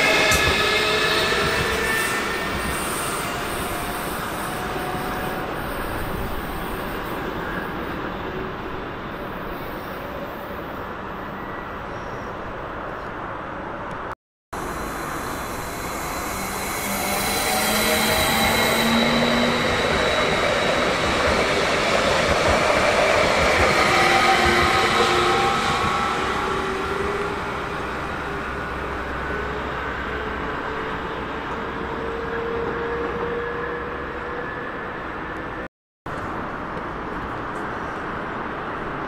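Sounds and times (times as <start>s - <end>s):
train rumbling: 0.0s - 9.8s, 14.6s - 39.0s
high squealing tones: 15.0s - 21.9s.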